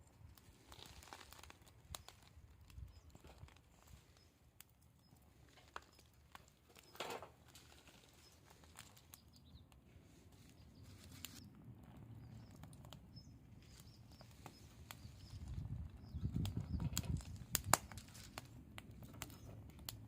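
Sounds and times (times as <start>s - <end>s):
campfire crackling: 0.0s - 20.0s
sharp pops: 16.4s - 20.0s.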